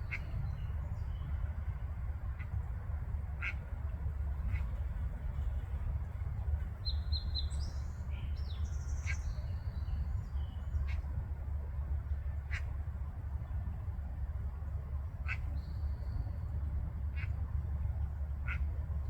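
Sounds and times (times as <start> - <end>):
duck quacking: 18.4 - 18.6.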